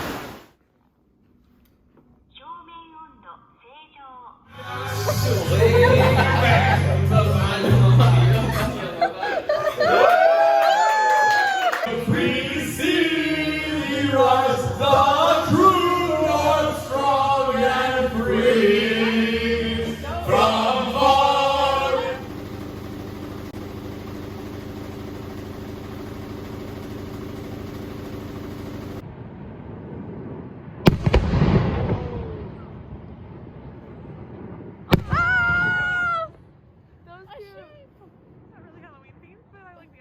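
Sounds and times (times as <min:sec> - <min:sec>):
singing over music: 0:11.9 - 0:22.2
steady held tones: 0:15.6 - 0:29.0
firework bangs: 0:29.9 - 0:33.0, 0:33.8 - 0:36.0.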